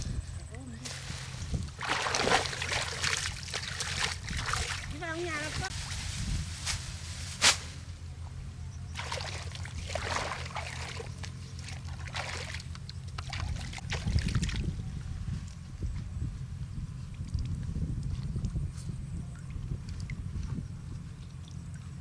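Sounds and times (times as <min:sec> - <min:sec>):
low hum: 0:00.0 - 0:22.0
water sloshing and splashing: 0:00.8 - 0:06.2, 0:08.9 - 0:15.0.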